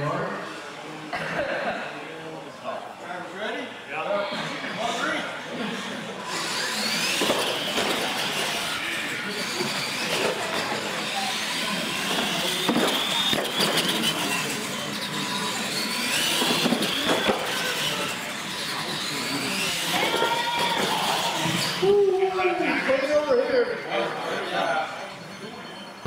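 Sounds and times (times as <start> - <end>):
electric motor whine: 6.2 - 21.9
rumble of tyres on concrete: 6.4 - 21.8.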